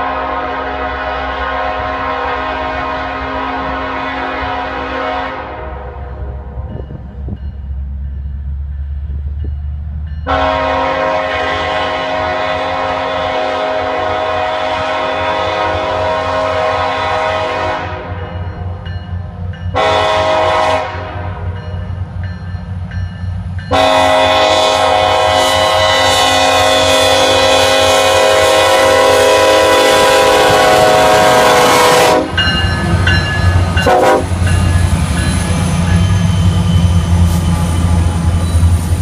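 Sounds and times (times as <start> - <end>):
locomotive air horn blasts: 0.0 - 6.8, 10.3 - 18.4, 19.7 - 21.6, 23.7 - 32.5, 33.8 - 34.5
low rumble of train: 0.0 - 39.0.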